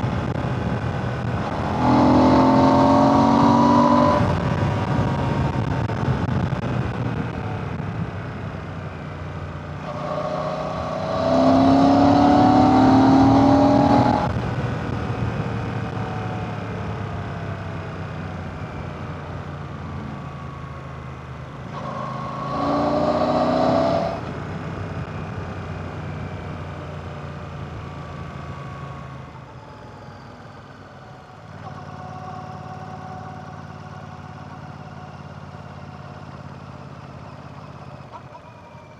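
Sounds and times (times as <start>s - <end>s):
motorcycle engine revving: 0.0s - 17.3s, 21.3s - 28.1s.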